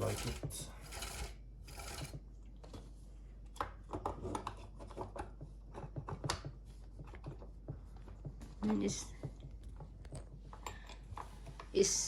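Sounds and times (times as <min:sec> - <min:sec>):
scraping rub: 0:00.0 - 0:02.2
small irregular clicks and taps: 0:03.6 - 0:11.7.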